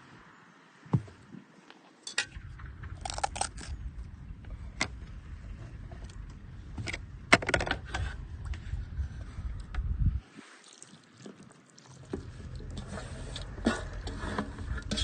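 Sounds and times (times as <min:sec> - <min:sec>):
steady low rumble: 0:02.2 - 0:10.3, 0:12.1 - 0:15.0.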